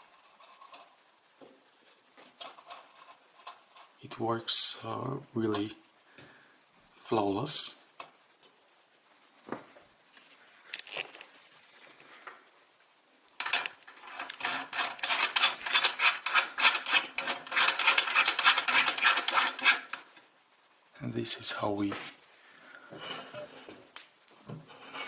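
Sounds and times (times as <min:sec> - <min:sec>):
lantern metal parts clicking: 0:10.8 - 0:11.2, 0:13.3 - 0:20.0.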